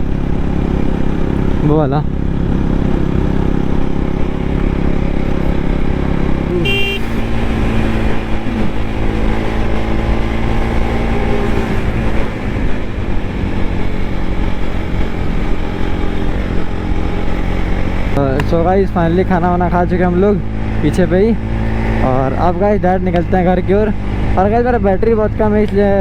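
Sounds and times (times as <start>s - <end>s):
motorcycle engine running: 0.0s - 26.0s
vehicle horn toot: 6.5s - 7.4s.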